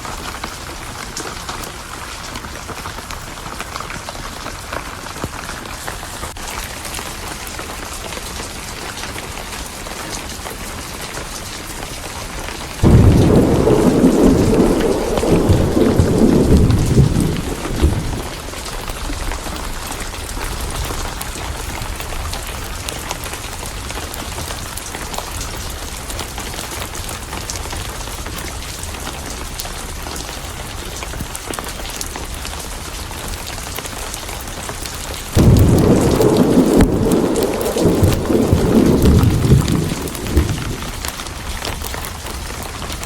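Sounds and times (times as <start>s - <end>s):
steady rain falling: 0.0s - 43.0s
thunder rumbling: 12.8s - 22.5s, 35.3s - 42.8s.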